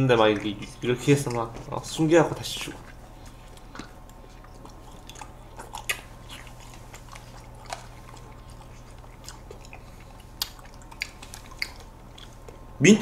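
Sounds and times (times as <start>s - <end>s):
people chewing ice cream cake: 0.0s - 13.0s
small mouth clicks: 2.9s - 12.6s.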